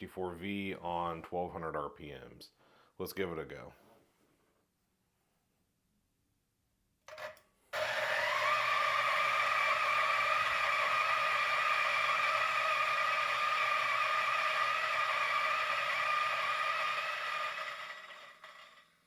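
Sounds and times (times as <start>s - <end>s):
coffee grinder whirring: 7.1s - 19.0s.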